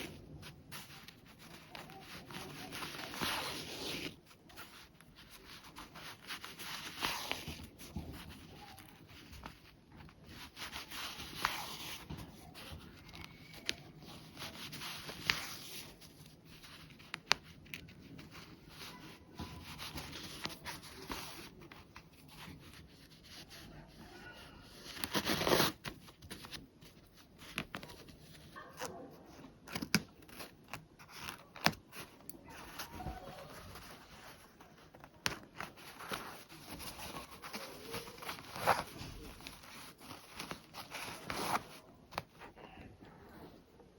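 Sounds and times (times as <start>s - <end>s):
fabric rustling: 30.2s - 42.6s.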